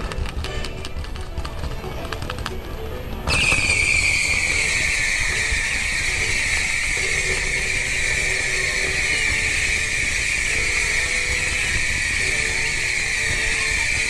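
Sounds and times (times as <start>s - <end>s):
fireworks crackling: 0.0s - 14.0s
shrill firework whistle: 3.2s - 14.0s.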